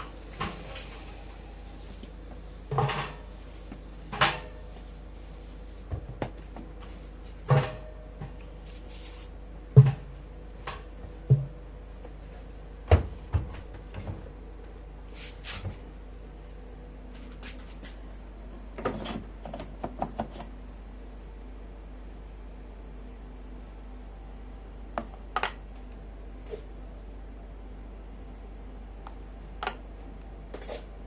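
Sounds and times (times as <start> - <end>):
washing machine knocks: 11.3 - 11.6, 12.9 - 14.2.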